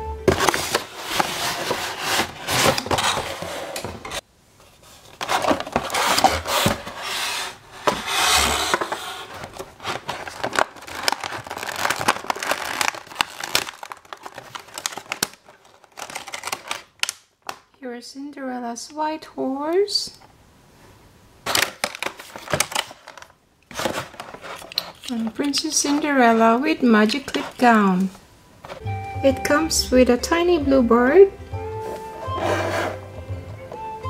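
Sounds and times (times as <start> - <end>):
packaging rustling and crinkling: 0.3 - 17.7, 21.4 - 26.4.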